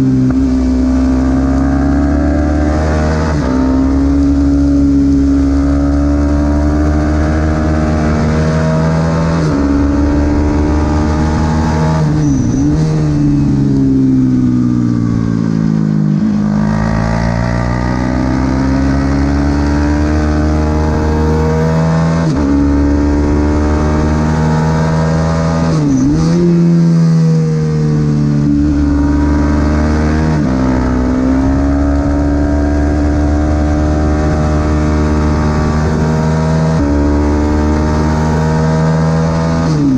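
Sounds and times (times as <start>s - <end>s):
racing motorcycle engine revving: 0.0s - 39.9s.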